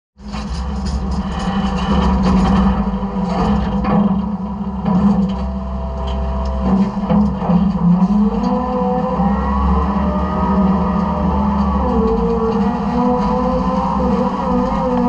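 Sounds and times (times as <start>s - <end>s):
metal clanks and rattles: 0.2s - 8.6s
garbage truck engine drone: 0.2s - 15.0s
faint whine: 0.3s - 15.0s.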